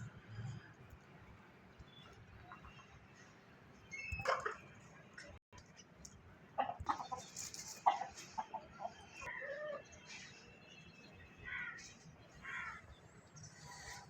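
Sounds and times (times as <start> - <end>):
chickens clucking: 6.6 - 9.0.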